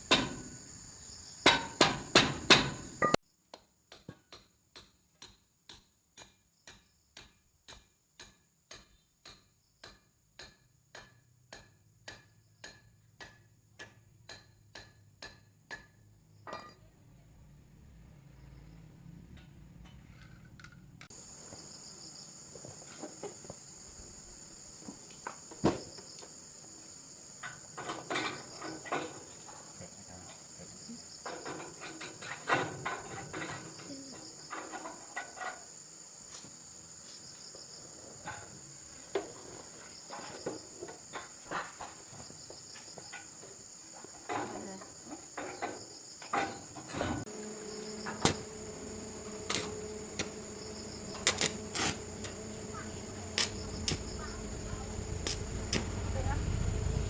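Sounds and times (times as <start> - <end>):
clinks and knocks: 11.0 - 16.9
high-pitched insect chirring: 47.6 - 55.9.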